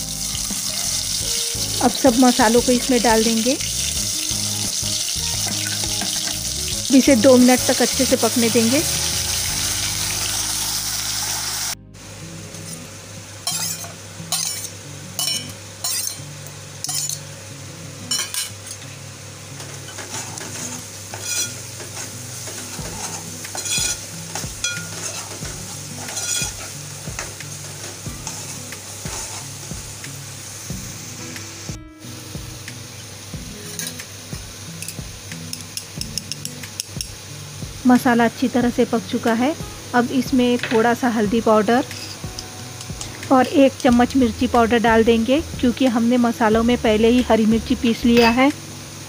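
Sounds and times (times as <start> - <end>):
paste sizzling in hot oil: 0.0 - 11.8, 13.4 - 17.2, 19.8 - 44.4
steel ladle scraping a pot: 19.9 - 24.0, 24.6 - 26.7, 28.2 - 29.5.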